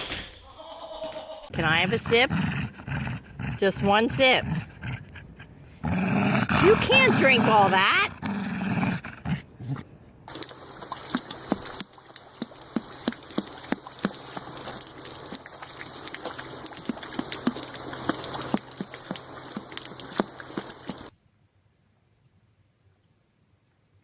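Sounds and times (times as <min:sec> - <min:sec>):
running water: 0:01.5 - 0:05.0, 0:05.8 - 0:09.4, 0:10.3 - 0:21.1
dog lapping water: 0:01.5 - 0:09.4, 0:10.3 - 0:21.1.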